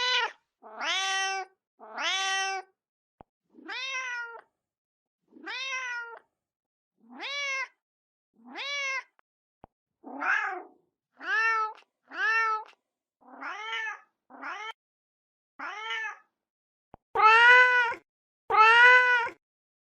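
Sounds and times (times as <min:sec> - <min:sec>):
cat meowing: 0:00.0 - 0:02.7, 0:03.6 - 0:04.4, 0:05.4 - 0:06.2, 0:07.1 - 0:07.8, 0:08.5 - 0:09.1, 0:10.1 - 0:12.7, 0:13.3 - 0:14.8, 0:15.6 - 0:16.3, 0:17.2 - 0:19.4.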